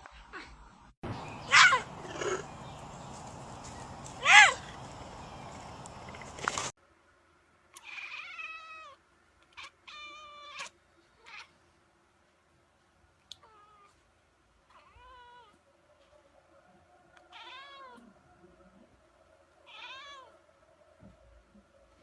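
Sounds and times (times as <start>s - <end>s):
cat meowing: 7.8s - 11.5s, 14.7s - 15.6s, 17.2s - 18.1s, 19.6s - 20.4s.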